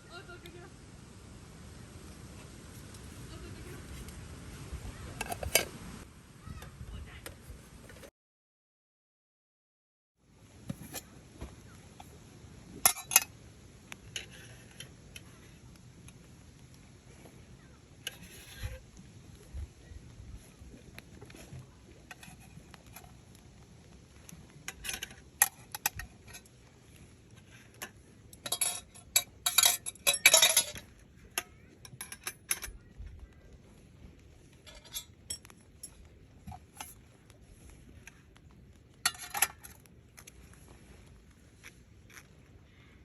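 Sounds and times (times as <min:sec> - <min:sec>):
cookware and utensils clinking: 0:12.8 - 0:13.3, 0:27.8 - 0:32.9, 0:34.6 - 0:36.9, 0:39.0 - 0:39.8.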